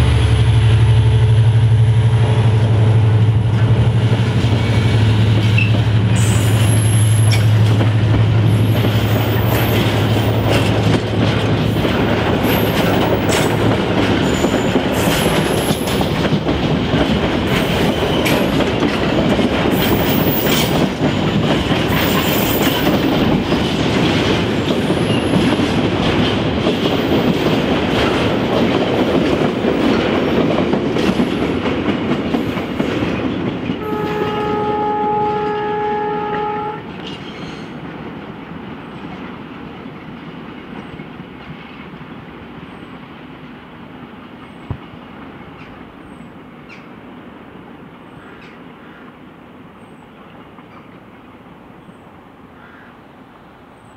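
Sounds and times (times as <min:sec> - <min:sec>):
train wheels clattering: 0:00.0 - 0:43.6
diesel locomotive drone: 0:00.0 - 0:53.9
train horn: 0:33.8 - 0:37.0.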